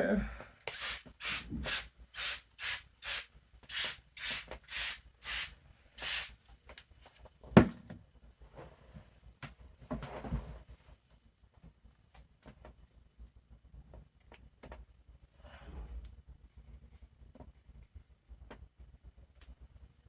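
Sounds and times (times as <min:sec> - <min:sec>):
spray bottle squirts: 0:00.7 - 0:06.3.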